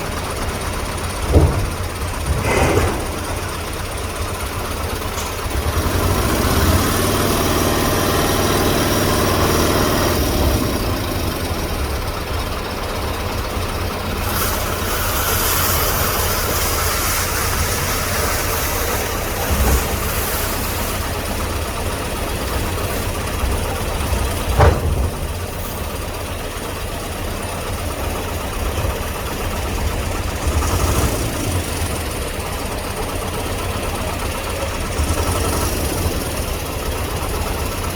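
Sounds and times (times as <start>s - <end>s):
large engine idling: 0.0s - 37.9s
hiss burst: 14.2s - 24.0s.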